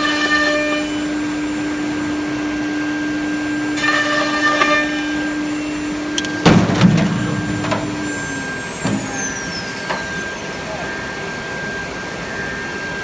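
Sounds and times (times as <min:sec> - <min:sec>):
spindle whine slowing: 0:05.4 - 0:13.0
loud clunk: 0:06.2 - 0:10.4.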